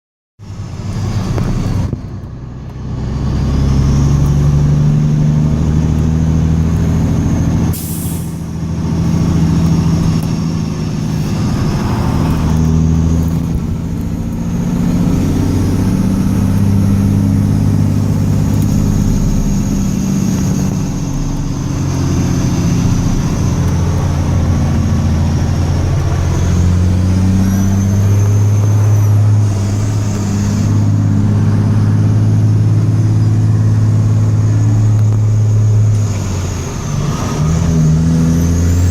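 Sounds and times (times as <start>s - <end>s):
heavy truck engine running: 0.4s - 38.9s
air brake hiss: 7.7s - 8.4s.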